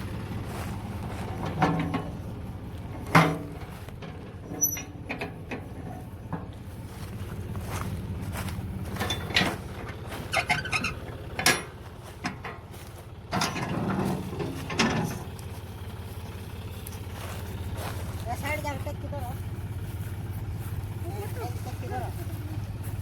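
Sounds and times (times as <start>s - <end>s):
sharp knocks and rattles: 0.0s - 18.0s
farm machine engine running: 0.0s - 23.0s.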